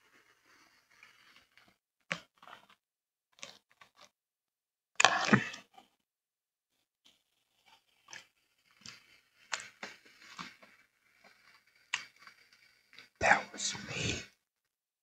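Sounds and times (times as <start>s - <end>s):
chewing crunchy cereal: 1.2s - 4.1s, 7.1s - 12.3s.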